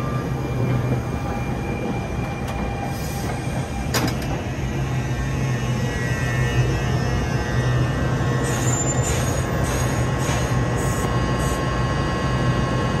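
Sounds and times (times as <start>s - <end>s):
electric train rolling with hum: 0.0s - 13.0s
high-pitched wheel squeals: 8.4s - 11.0s.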